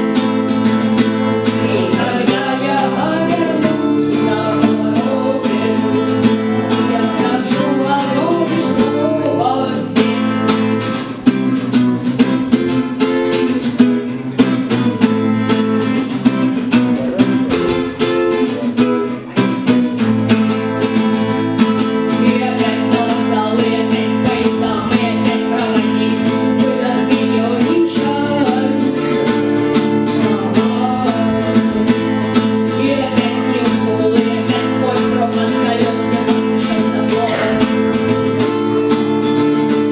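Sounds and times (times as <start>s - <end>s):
person singing: 0.0s - 11.1s, 20.8s - 38.8s
acoustic guitars strumming: 0.0s - 39.9s.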